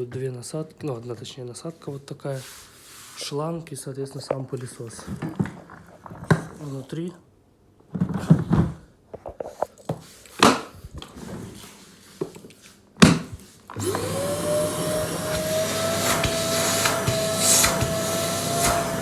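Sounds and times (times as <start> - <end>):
vacuum cleaner motor running: 13.7 - 19.0.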